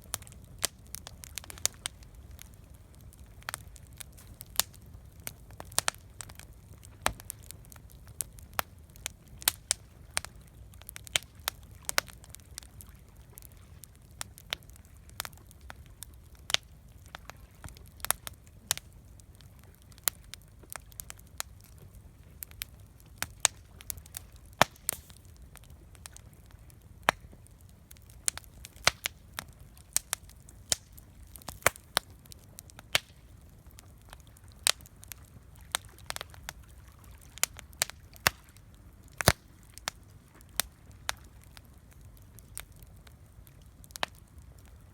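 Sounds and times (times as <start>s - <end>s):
campfire crackling: 0.0s - 44.9s.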